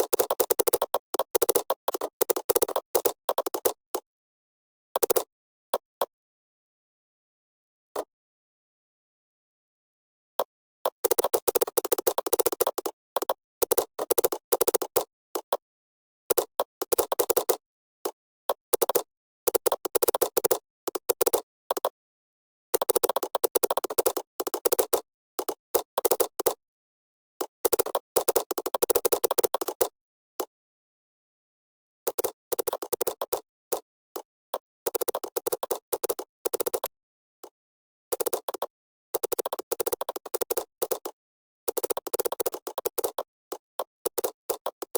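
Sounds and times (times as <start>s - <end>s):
keyboard typing: 34.9s - 44.9s.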